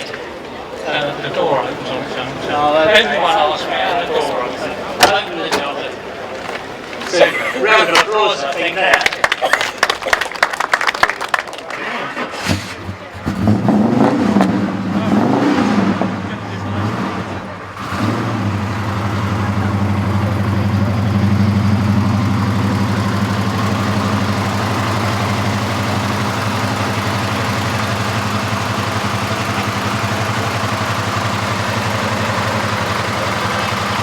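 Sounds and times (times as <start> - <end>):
car engine idling: 16.1 - 34.0.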